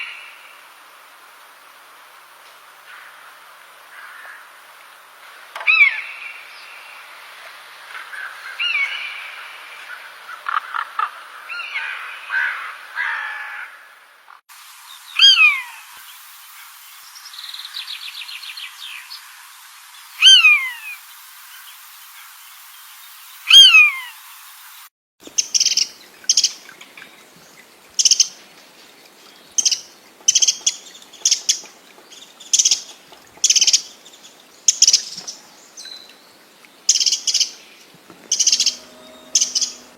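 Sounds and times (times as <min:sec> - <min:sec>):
bird trill: 0:15.1 - 0:15.8, 0:20.2 - 0:20.9, 0:29.6 - 0:31.7, 0:38.2 - 0:39.9
short high sharp bird calls: 0:15.1 - 0:15.9, 0:20.2 - 0:21.0, 0:23.5 - 0:24.2, 0:38.3 - 0:39.9
birds chattering: 0:36.9 - 0:39.9
bird call sliding down in pitch: 0:38.2 - 0:39.9.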